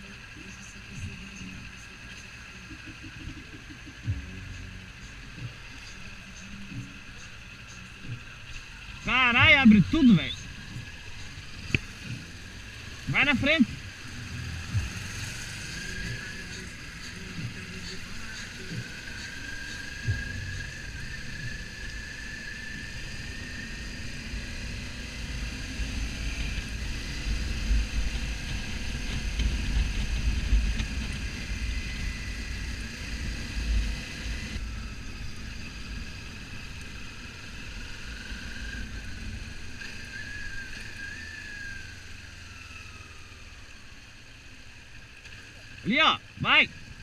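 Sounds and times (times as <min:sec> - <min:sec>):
motorcycle engine running: 0:00.0 - 0:47.0
thin engine whine: 0:00.0 - 0:47.0
wind rumble on microphone: 0:21.4 - 0:36.9.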